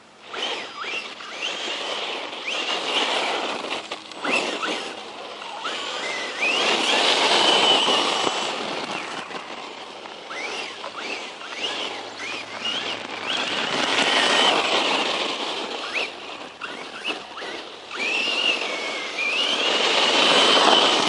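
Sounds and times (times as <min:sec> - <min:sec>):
electric motor whining: 0:00.0 - 0:21.0
tyre and drivetrain noise: 0:00.0 - 0:21.0.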